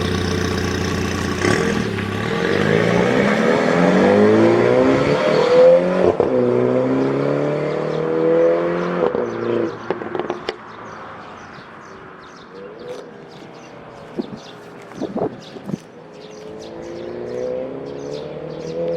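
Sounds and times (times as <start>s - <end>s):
engine idling with crackling: 0.0s - 2.2s
car engine revving: 0.0s - 10.6s.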